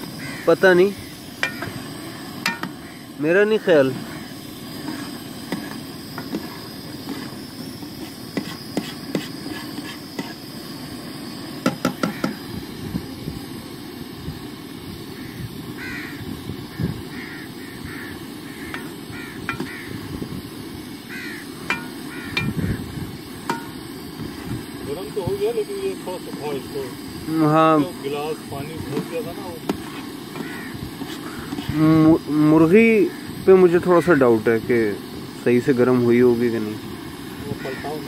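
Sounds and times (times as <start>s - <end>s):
bird calling in short cries: 0.2s - 1.7s, 15.2s - 20.0s, 21.1s - 21.5s, 22.1s - 22.8s, 30.4s - 31.6s
steady low rumble: 18.4s - 25.6s.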